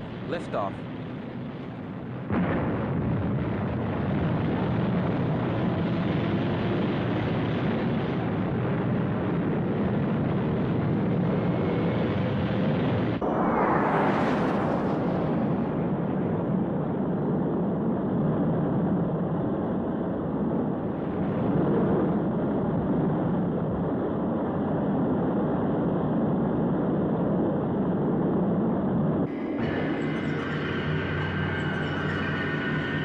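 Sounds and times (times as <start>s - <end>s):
rocket engine rushing: 13.0s - 16.9s.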